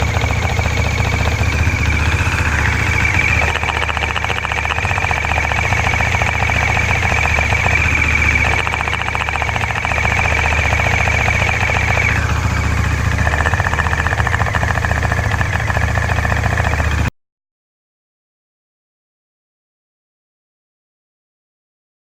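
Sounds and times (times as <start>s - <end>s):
high-pitched whine: 0.0s - 17.1s
motorcycle engine rattling: 0.0s - 17.1s.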